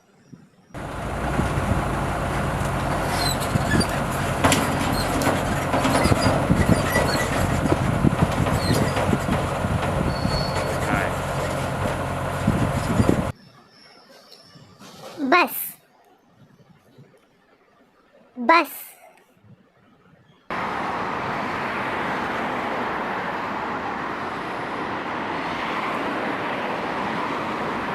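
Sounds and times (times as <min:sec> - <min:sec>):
clattering knocks and rattles: 0:00.8 - 0:13.3
dump truck engine running: 0:00.8 - 0:13.3
short high squeaks: 0:03.0 - 0:07.6, 0:08.5 - 0:09.2, 0:10.0 - 0:11.6.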